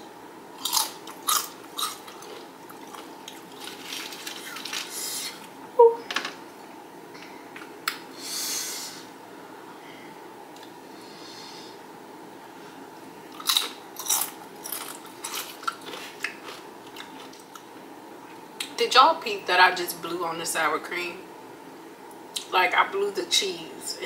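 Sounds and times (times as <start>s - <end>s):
crunchy chewing of chips: 0.6s - 5.5s, 13.3s - 17.7s
breathy blowing puffs: 8.1s - 9.2s.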